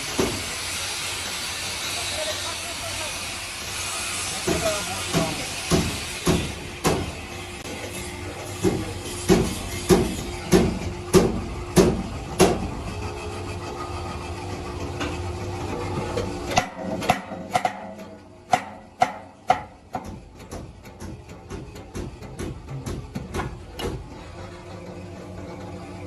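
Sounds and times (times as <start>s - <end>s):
steady machine hum: 0.0s - 26.0s
sharp knocks: 5.2s - 7.2s, 16.6s - 24.0s
heavy metal strikes: 8.6s - 12.8s, 16.6s - 23.5s.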